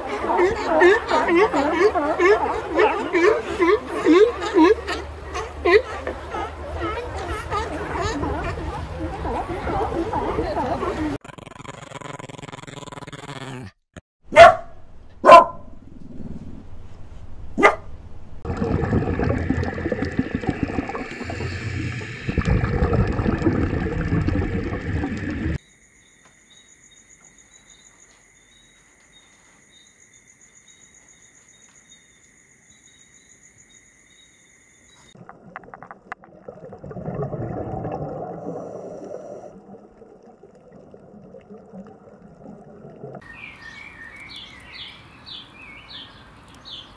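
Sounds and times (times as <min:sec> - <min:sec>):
puppy yapping: 0:14.3 - 0:15.6.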